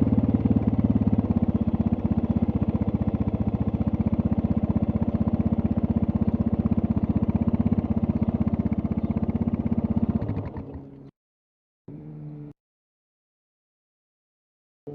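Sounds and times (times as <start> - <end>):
motorcycle engine idling: 0.0 - 11.1.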